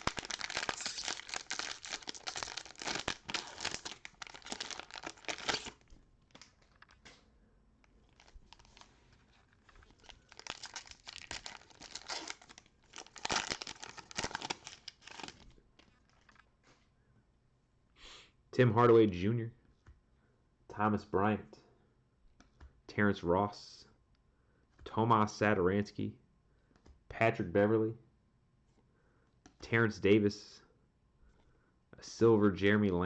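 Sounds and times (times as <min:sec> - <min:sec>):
cellophane wrapper tearing and crumpling: 0:00.0 - 0:07.1, 0:08.0 - 0:16.5.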